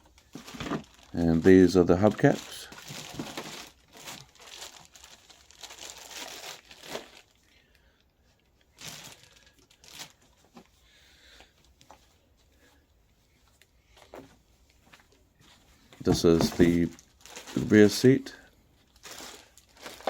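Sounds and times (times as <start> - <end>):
plastic packaging crinkling: 0.0 - 7.5, 8.6 - 10.6, 16.0 - 20.0.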